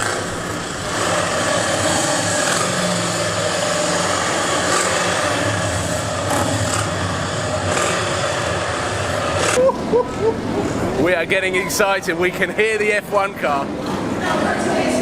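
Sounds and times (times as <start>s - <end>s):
vehicle engines running steadily: 0.0s - 9.6s.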